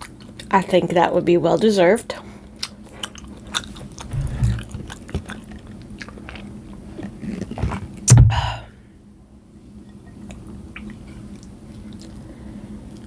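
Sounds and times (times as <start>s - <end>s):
chewing food: 2.6s - 8.0s, 10.3s - 12.3s
low thump: 4.1s - 4.9s, 8.1s - 8.6s.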